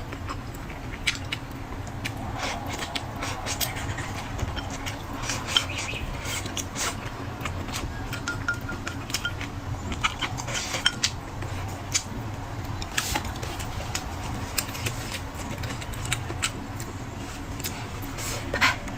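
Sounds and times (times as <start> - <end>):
chewing: 0.0 - 18.9
steady low hum: 0.0 - 18.9
utensils clinking on dishes: 8.0 - 11.2.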